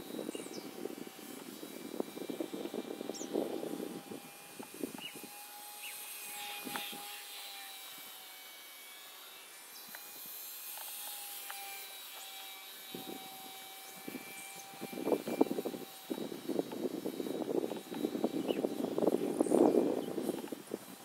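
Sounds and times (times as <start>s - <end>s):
electric motor and propeller whine: 0.0s - 21.0s.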